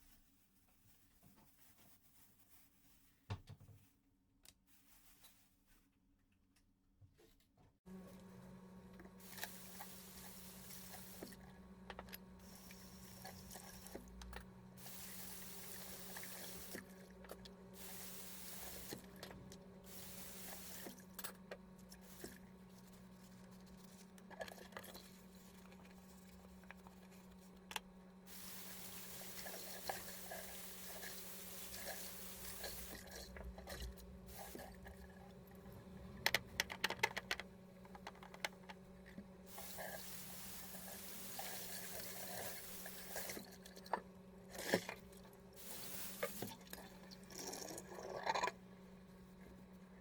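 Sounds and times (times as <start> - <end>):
water running: 8.9 - 27.4, 28.3 - 36.6, 39.4 - 48.6
small clicks and knocks: 36.1 - 39.2.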